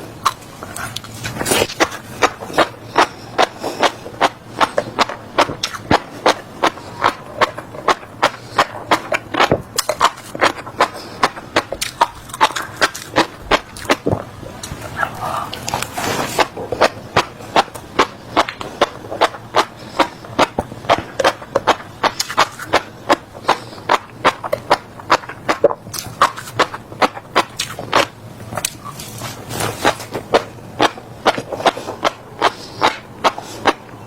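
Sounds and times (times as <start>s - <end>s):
chewing crunchy seeds: 0.0s - 34.0s.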